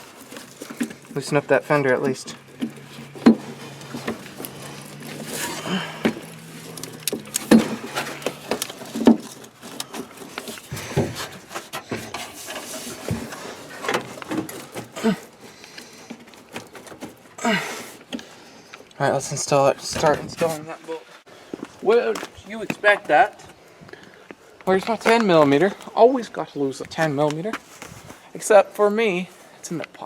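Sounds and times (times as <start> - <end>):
handling noise: 0.0 - 18.9, 19.5 - 20.9.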